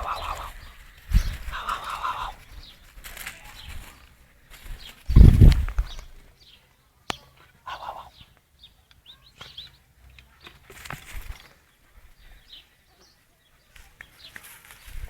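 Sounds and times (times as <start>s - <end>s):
rustling: 0.0s - 6.3s, 9.4s - 12.6s, 13.7s - 15.0s
faint bird chirps: 0.0s - 15.0s.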